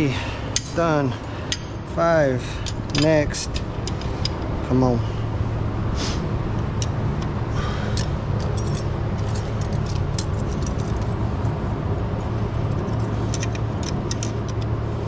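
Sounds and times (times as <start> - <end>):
low mechanical hum: 0.0 - 15.0
metallic clicks of wrench: 13.3 - 14.7.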